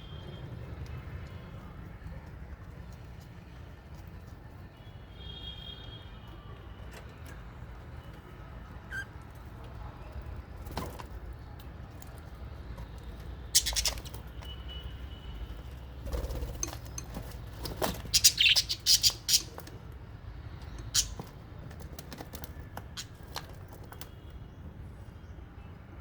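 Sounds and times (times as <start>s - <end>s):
birds chirping: 12.4s - 14.8s, 15.4s - 19.8s, 20.5s - 21.4s.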